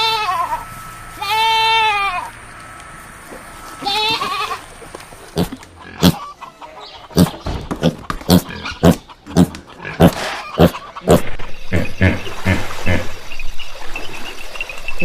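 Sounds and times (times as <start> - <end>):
animal grunting: 5.3 - 6.4, 7.1 - 13.2.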